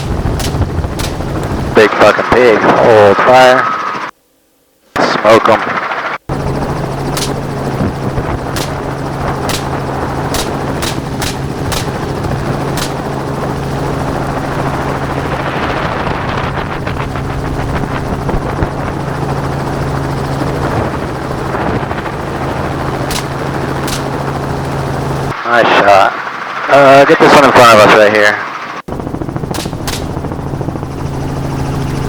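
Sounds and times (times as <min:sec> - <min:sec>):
gunshots: 0:00.0 - 0:01.9, 0:07.1 - 0:07.5, 0:08.5 - 0:13.1, 0:23.0 - 0:24.2, 0:29.5 - 0:30.3
helicopter drone: 0:00.0 - 0:04.1, 0:05.0 - 0:32.0.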